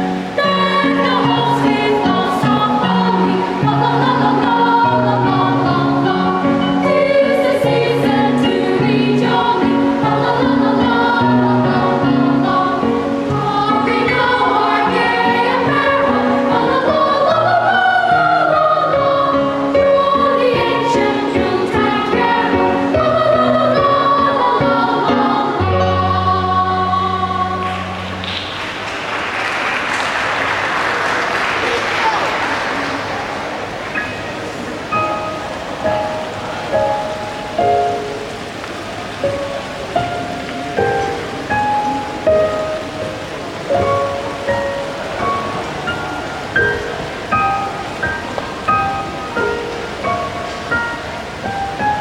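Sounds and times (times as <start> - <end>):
children's choir singing: 0.0 - 52.0
applause: 27.6 - 34.0.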